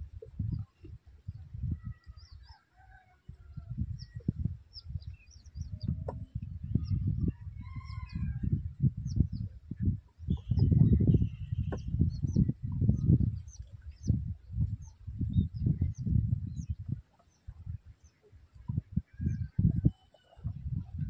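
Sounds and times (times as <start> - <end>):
birds chirping and calling: 10.2 - 14.2.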